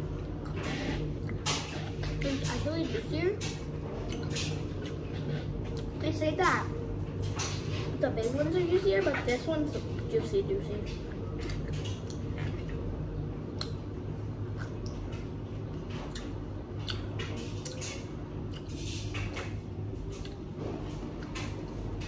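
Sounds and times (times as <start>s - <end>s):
washing machine humming: 0.0s - 22.0s
chewing crunchy pickle: 11.0s - 20.5s.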